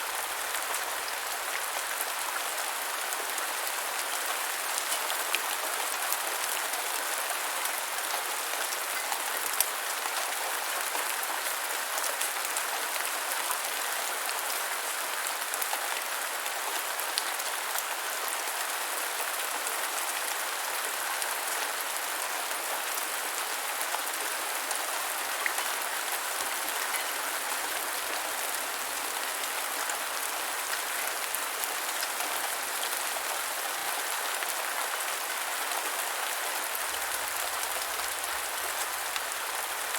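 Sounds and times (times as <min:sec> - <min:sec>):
gentle rain hiss: 0:00.0 - 0:39.9.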